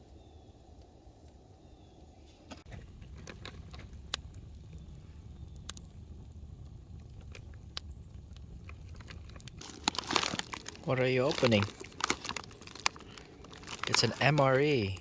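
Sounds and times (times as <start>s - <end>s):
low rumble of burning fire: 0.0s - 15.0s
wood pops: 2.5s - 6.0s.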